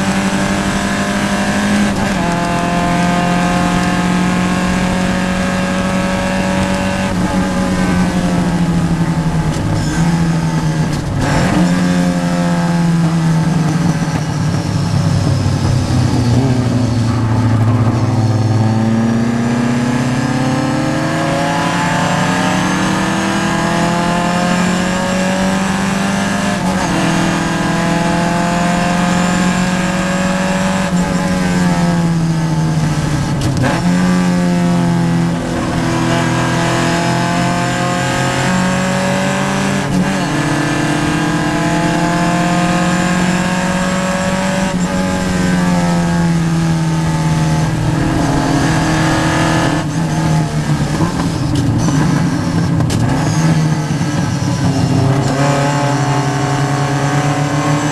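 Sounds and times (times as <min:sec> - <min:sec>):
race car engine revving: 0:00.0 - 0:57.9.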